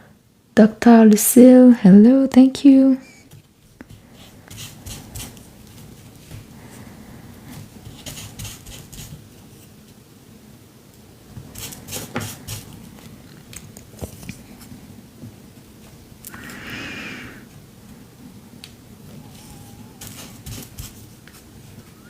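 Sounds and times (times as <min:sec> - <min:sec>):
scratchy paper rustle: 0:19.3 - 0:21.8.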